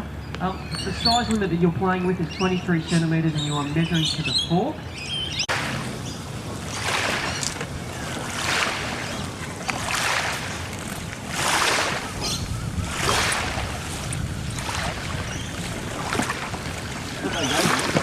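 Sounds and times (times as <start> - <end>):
wind on microphone: 5.3 - 18.0
water swishing: 5.4 - 18.0.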